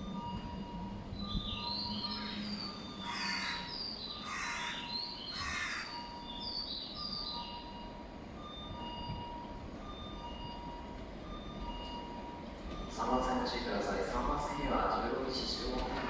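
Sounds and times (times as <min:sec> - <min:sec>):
low station rumble: 0:00.0 - 0:16.0
crow cawing: 0:03.0 - 0:05.9.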